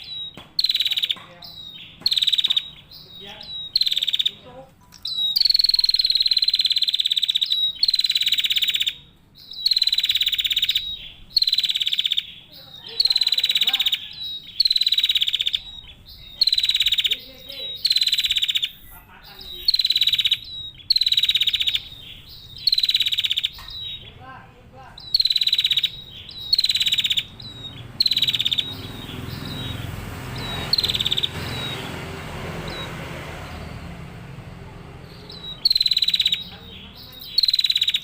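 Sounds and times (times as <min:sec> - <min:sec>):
bird buzzy rattling calls: 0:00.0 - 0:38.0.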